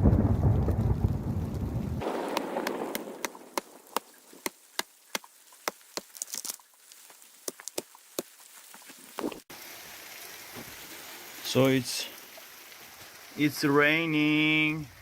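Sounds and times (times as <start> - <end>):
sharp taps and clicks: 2.3 - 6.1.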